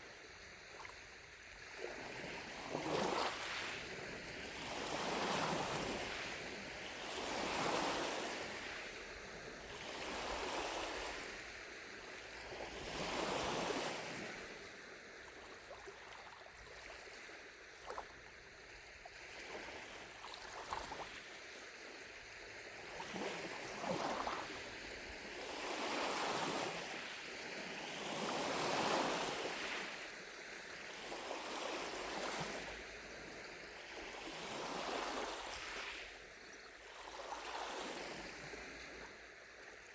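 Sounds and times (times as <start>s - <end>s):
waves lapping on shore: 0.0s - 39.9s
light water splashes: 14.2s - 21.6s.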